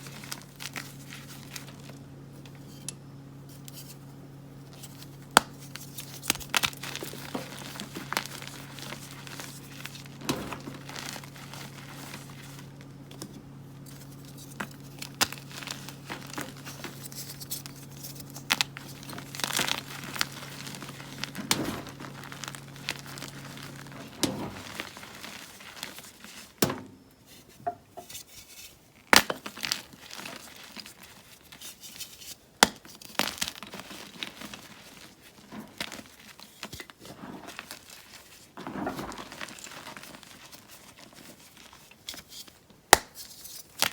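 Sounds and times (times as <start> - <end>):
low steady hum: 0.0 - 28.1.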